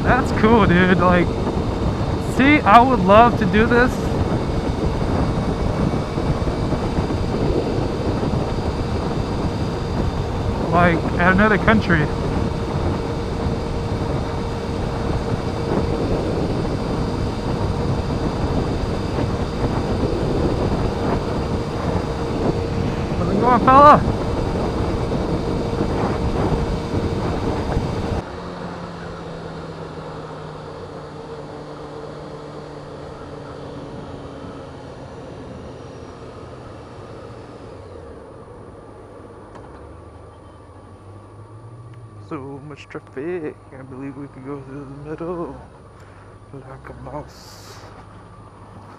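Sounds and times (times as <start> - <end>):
wind rumble on microphone: 0.0 - 28.3
motorcycle engine running: 0.0 - 48.9.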